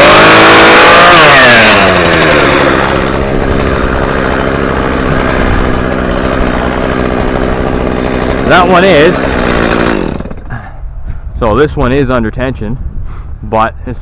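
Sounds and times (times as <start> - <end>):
chainsaw revving down and idling: 0.0 - 10.7.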